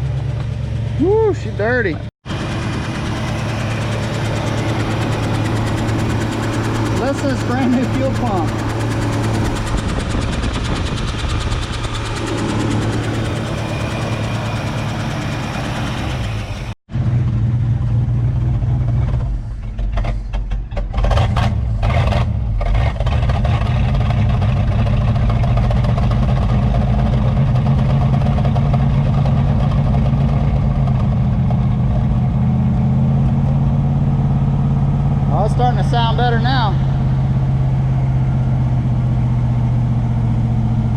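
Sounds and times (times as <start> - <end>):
car engine idling unevenly: 0.0 - 16.7.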